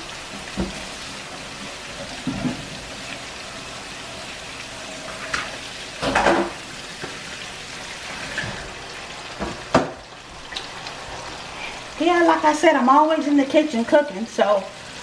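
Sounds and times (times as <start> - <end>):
chicken wings sizzling in grease: 0.0 - 15.0
kitchen knocks: 9.4 - 10.0.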